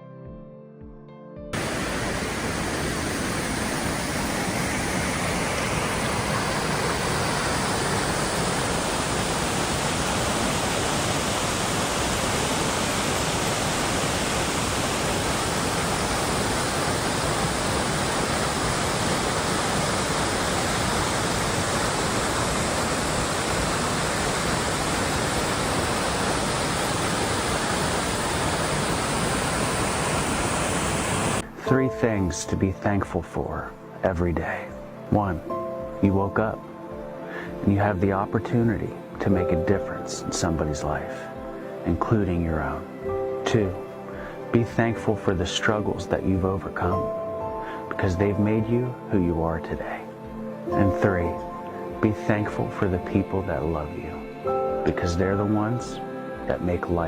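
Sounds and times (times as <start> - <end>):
rushing water: 1.6 - 31.7.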